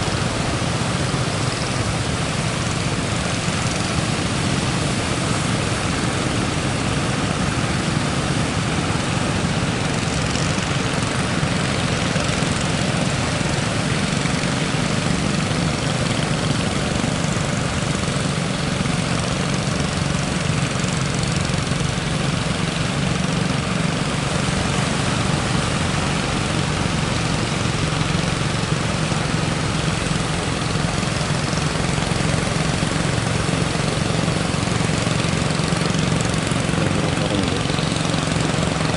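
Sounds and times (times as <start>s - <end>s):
boat engine running: 0.0s - 38.9s
waves breaking: 0.0s - 38.9s.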